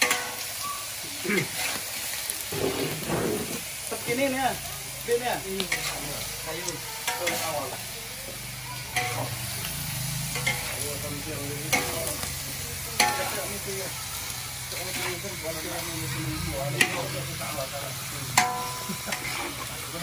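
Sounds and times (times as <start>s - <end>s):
pork sizzling in a wok: 0.0s - 20.0s
metal ladle scraping a wok: 1.4s - 3.8s, 18.4s - 19.9s.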